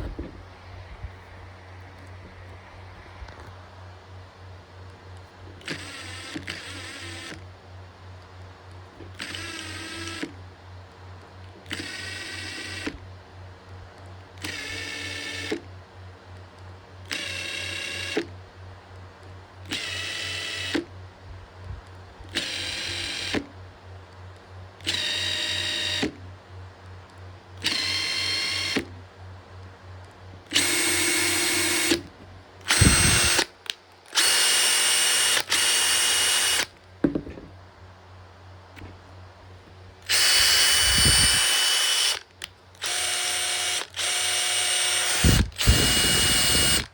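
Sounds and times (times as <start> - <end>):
impact driver motor whine: 14.4 - 15.6, 17.1 - 18.3, 19.7 - 20.9, 22.2 - 23.5, 24.8 - 26.2, 27.6 - 28.9, 30.5 - 37.4, 40.0 - 46.9.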